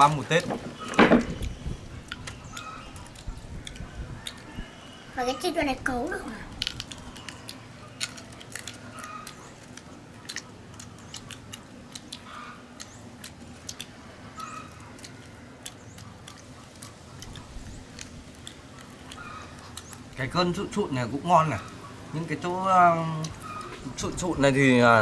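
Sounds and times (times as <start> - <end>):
person chewing meat off a bone: 1.4 - 5.0, 6.5 - 20.2.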